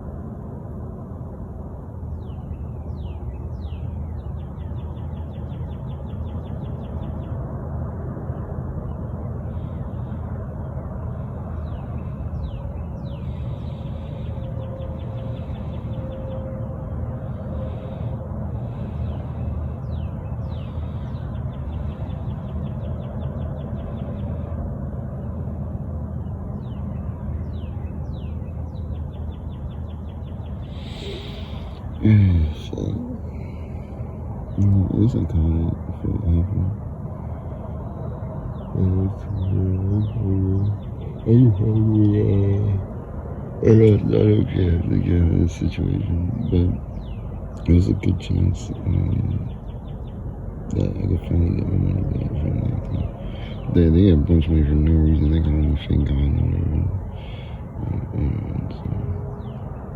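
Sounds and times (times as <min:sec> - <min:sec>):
steady low rumble: 0:00.0 - 0:59.9
songbird singing and trilling: 0:02.1 - 0:07.5, 0:08.8 - 0:24.4, 0:26.1 - 0:36.8, 0:37.4 - 0:43.0, 0:43.6 - 0:59.9
bird whistling calls: 0:30.6 - 0:31.9.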